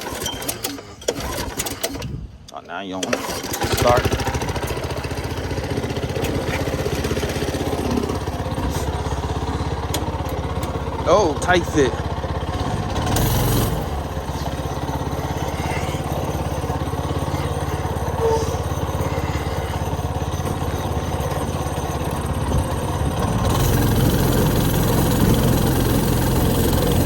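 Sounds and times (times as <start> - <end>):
go-kart engine running: 0.0 - 2.0, 3.0 - 27.0.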